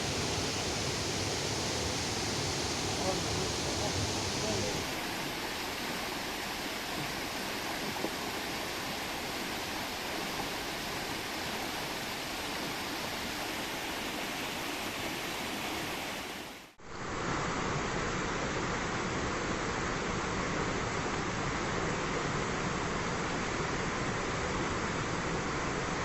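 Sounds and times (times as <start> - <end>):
river water rushing over rocks: 0.0 - 26.0.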